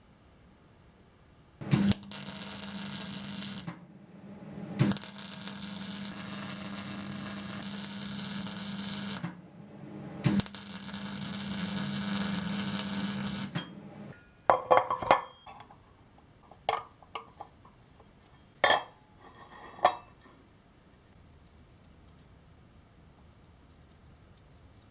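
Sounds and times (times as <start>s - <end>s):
arc welding hiss: 1.7s - 3.7s, 4.8s - 9.3s, 10.2s - 13.5s.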